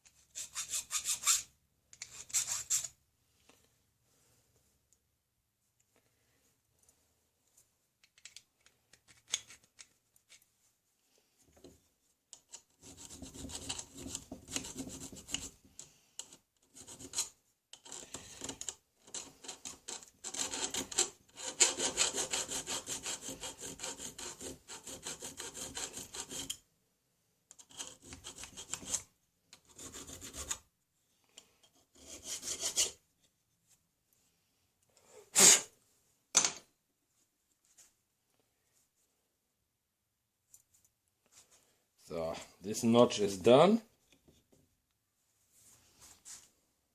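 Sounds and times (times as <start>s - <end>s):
hand file filing steel: 0.1s - 2.9s, 12.6s - 15.6s, 16.2s - 26.6s, 27.6s - 30.6s, 31.6s - 33.0s.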